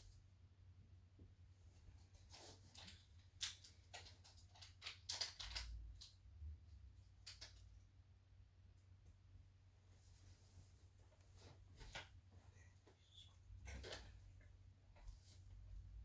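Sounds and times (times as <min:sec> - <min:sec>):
faint irregular clicks and ticks: 0:02.0 - 0:08.0
low steady hum: 0:05.4 - 0:16.0.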